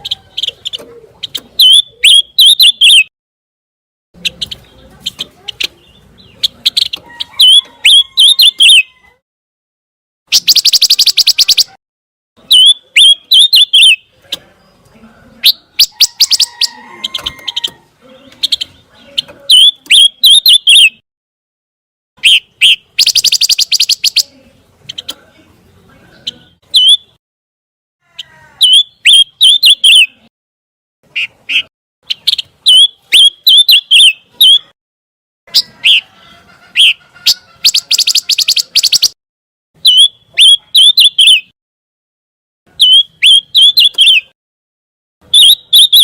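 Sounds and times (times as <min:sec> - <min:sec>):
bird chirping: 0:00.0 - 0:03.1, 0:04.2 - 0:09.2, 0:10.3 - 0:11.8, 0:12.4 - 0:21.0, 0:22.2 - 0:27.2, 0:28.2 - 0:30.3, 0:31.1 - 0:34.8, 0:35.5 - 0:39.2, 0:39.8 - 0:41.5, 0:42.7 - 0:44.4, 0:45.2 - 0:46.0
rapid bird trill: 0:00.0 - 0:03.1, 0:04.2 - 0:09.0, 0:10.3 - 0:11.8, 0:12.4 - 0:14.1, 0:15.4 - 0:21.0, 0:22.2 - 0:25.1, 0:26.2 - 0:27.2, 0:28.6 - 0:30.3, 0:31.1 - 0:34.8, 0:35.5 - 0:39.2, 0:39.8 - 0:41.6, 0:42.7 - 0:44.4, 0:45.2 - 0:46.0.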